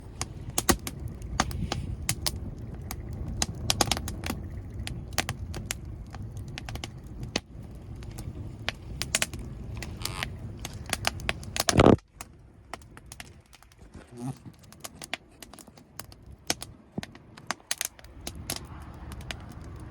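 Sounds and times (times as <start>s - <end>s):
low rumble: 0.0s - 13.8s, 17.9s - 19.9s
wood fire crackling: 0.0s - 19.9s.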